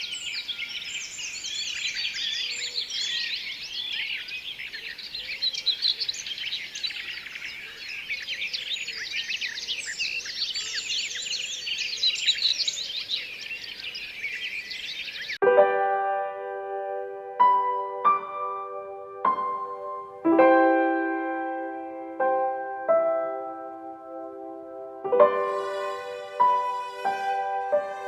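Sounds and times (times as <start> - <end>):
birds chirping and singing: 0.0 - 15.4, 24.6 - 28.0.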